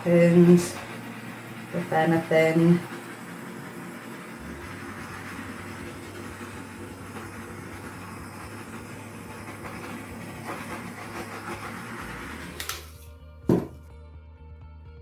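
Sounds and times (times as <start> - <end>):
torch flame hissing: 0.0 - 13.7
torch switch click: 12.6 - 13.1.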